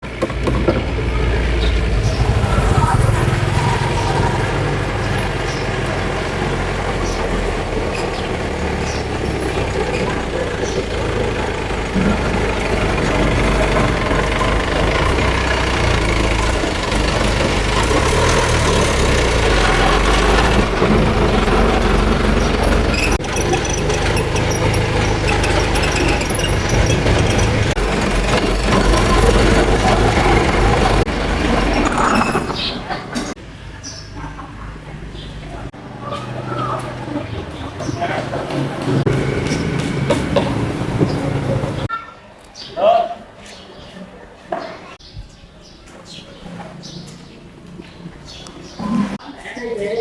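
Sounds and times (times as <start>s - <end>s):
motor humming: 0.1s - 33.3s.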